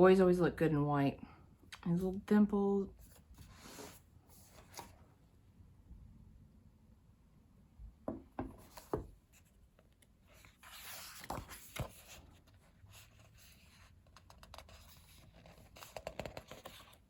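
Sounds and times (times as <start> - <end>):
pages turning: 3.0 - 5.0, 8.6 - 17.0
soft knocks: 8.0 - 9.1.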